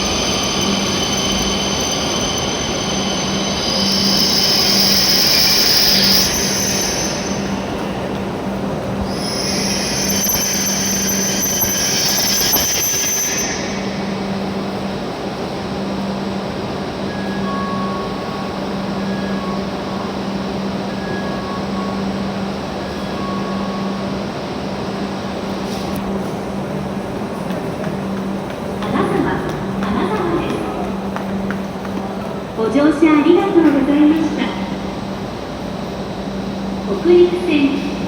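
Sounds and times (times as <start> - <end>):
train brake squeal: 0.0 - 15.0, 17.0 - 26.0
standing train low hum: 0.0 - 38.0.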